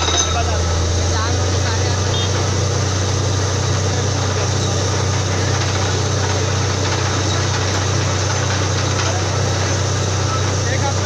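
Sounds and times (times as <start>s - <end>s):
drilling rig engine drone: 0.0s - 11.0s
mechanical clatter: 4.2s - 11.0s.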